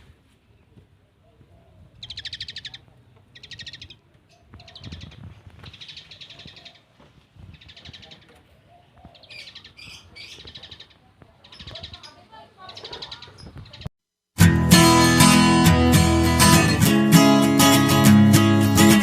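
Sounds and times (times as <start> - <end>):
parakeet harsh chattering calls: 2.0 - 2.8, 3.4 - 6.9, 7.5 - 8.3, 9.2 - 13.8.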